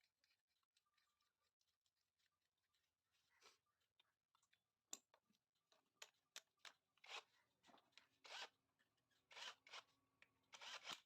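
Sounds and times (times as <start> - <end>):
sharp clicks of tools: 10.5 - 11.0.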